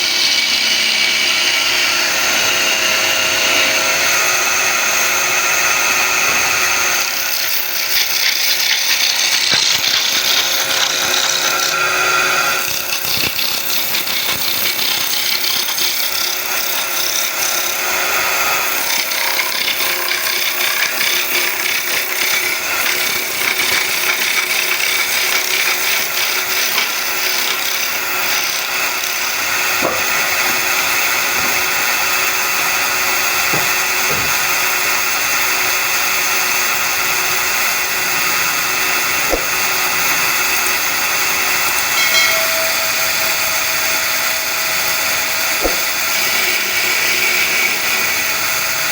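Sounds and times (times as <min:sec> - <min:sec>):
wood lathe humming: 0:00.0 - 0:48.9
chisel scraping spinning wood: 0:06.9 - 0:43.8, 0:44.8 - 0:48.3
short knocks: 0:29.7 - 0:35.1, 0:38.3 - 0:40.4, 0:45.6 - 0:46.5.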